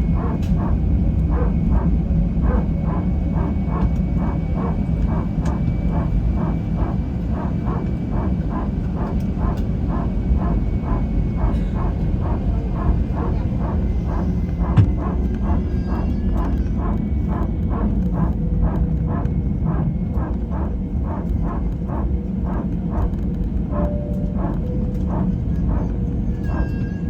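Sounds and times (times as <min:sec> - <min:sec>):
aircraft engine rumble: 0:00.0 - 0:27.0
regular knocking: 0:14.6 - 0:15.2.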